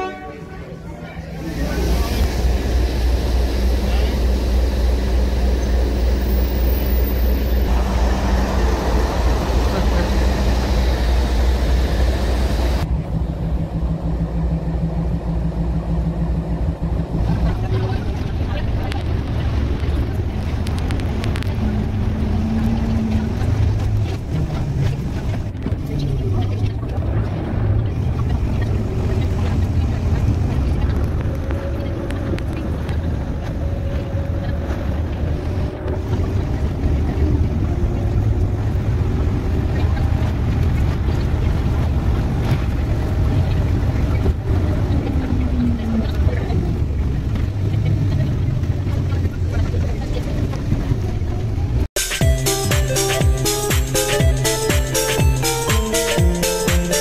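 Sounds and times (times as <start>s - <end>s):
vehicle engine humming: 0.0s - 57.0s.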